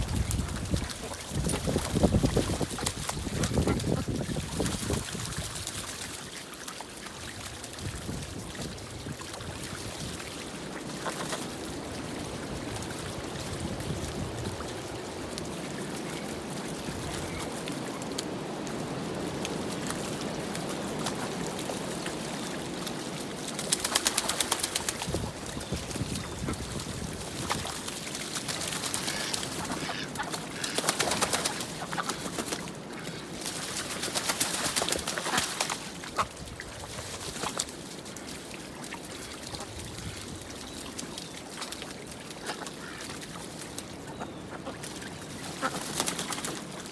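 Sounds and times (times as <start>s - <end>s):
soft duck calls: 29.0s - 31.0s.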